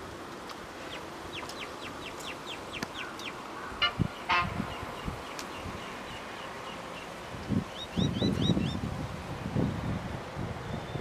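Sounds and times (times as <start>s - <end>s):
birds chirping: 0.6s - 8.9s
harsh bird calls: 0.8s - 8.8s.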